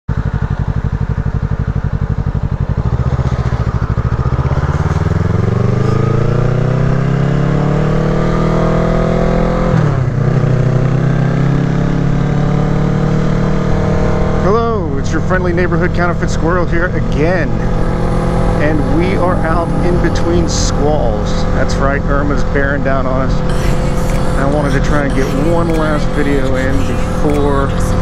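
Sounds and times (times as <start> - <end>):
motorcycle engine accelerating: 0.1 - 28.0.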